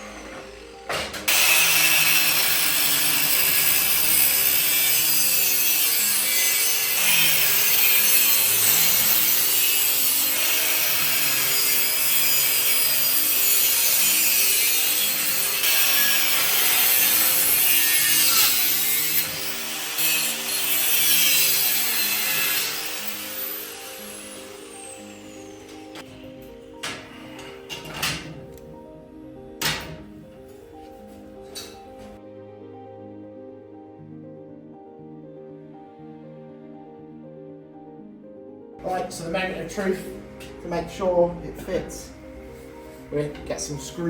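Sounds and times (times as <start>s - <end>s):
handheld power tool running: 0.0s - 27.8s
soft piano and strings music: 0.0s - 44.0s.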